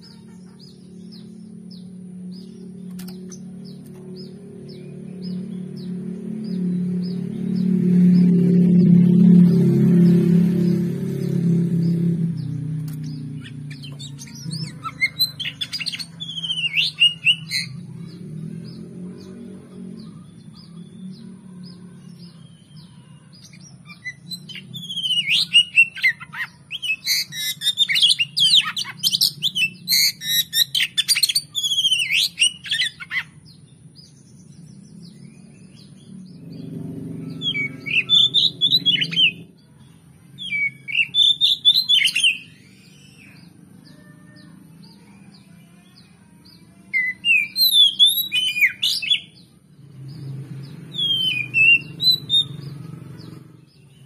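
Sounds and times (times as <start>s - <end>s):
steady low hum: 0.0s - 24.8s
bird singing whistled notes: 1.1s - 19.4s, 20.0s - 39.5s, 40.4s - 44.0s, 46.5s - 54.0s.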